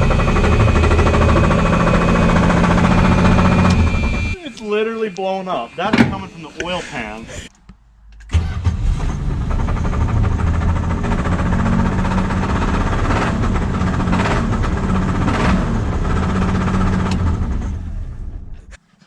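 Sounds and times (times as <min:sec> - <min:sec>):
car engine knocking: 0:00.0 - 0:04.4, 0:09.2 - 0:17.6.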